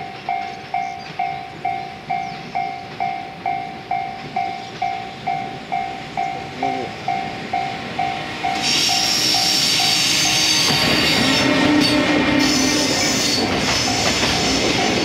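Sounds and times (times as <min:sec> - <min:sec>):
freight train passing: 0:00.0 - 0:15.0
loud rail noise: 0:00.0 - 0:15.0
high wheel squeal: 0:08.0 - 0:15.0.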